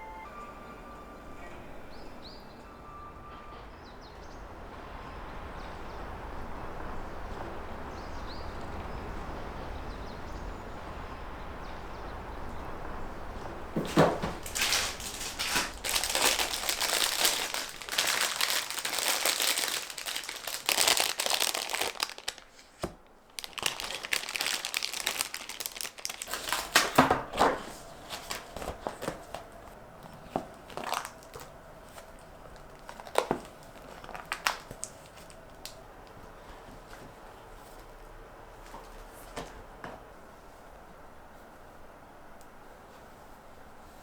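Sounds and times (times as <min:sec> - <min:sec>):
wrapping crinkling: 0:13.8 - 0:38.0.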